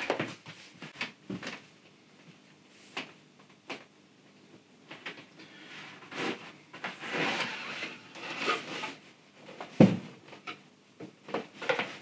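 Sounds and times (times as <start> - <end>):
cardboard scraping and rustling: 5.9 - 9.0.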